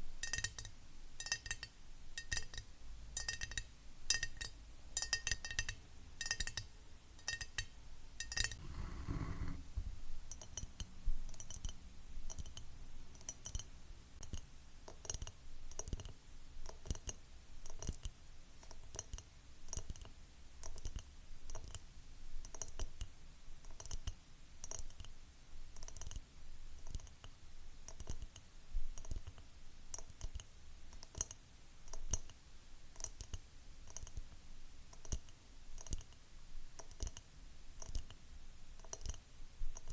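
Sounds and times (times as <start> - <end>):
fingernails tapping glass: 8.4 - 9.7.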